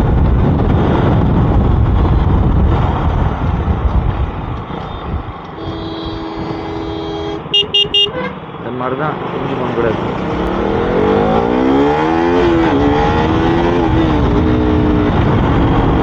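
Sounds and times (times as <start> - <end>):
wind buffeting microphone: 0.0 - 8.0, 9.6 - 16.0
motorcycle engine rumble: 0.0 - 11.8
vehicle horn: 5.6 - 8.4.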